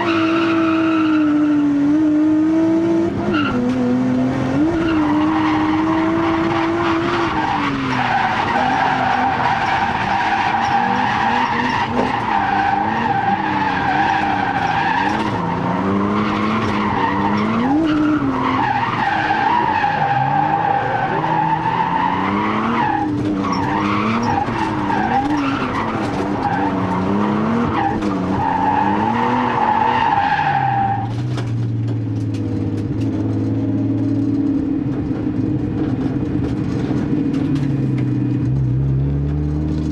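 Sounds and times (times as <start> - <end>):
car engine revving: 0.0 - 39.9
tyre squeal: 4.7 - 31.2.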